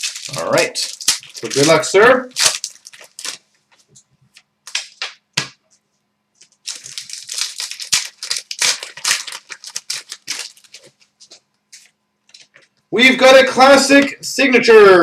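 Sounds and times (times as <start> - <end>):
foil wrapper tearing: 0.0 - 3.4, 6.4 - 11.0
rapid wrapper rustling: 0.0 - 5.0, 6.4 - 12.7.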